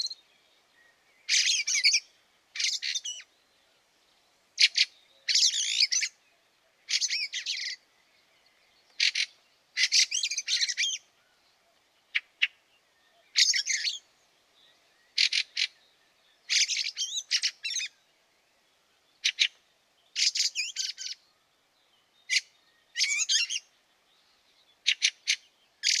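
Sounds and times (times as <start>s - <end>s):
bird harsh chattering calls: 9.0s - 11.0s, 15.2s - 15.7s.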